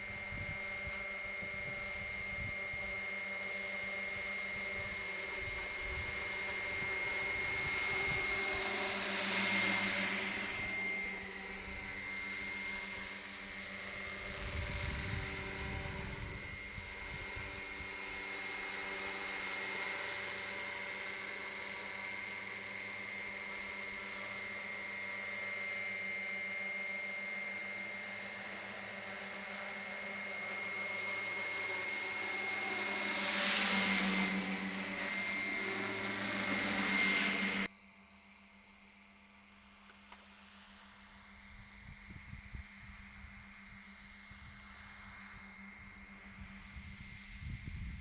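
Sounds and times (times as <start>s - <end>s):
model helicopter whine: 0.0s - 48.0s.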